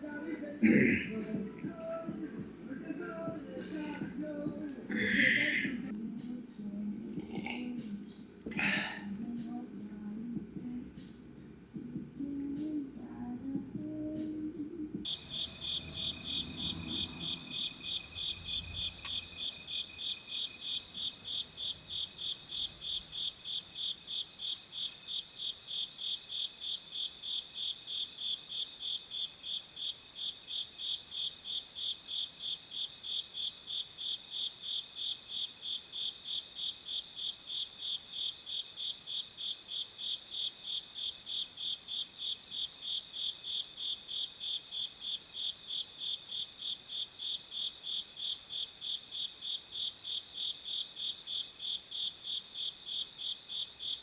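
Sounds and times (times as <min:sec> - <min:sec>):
insects chirping: 0:00.0 - 0:54.0
high-pitched insect trill: 0:15.1 - 0:54.0.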